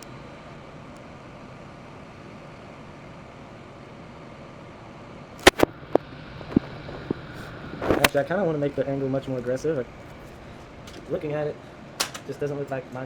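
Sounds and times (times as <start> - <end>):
machine hum: 0.0 - 13.0
sharp clicks: 5.4 - 6.0, 12.0 - 12.4.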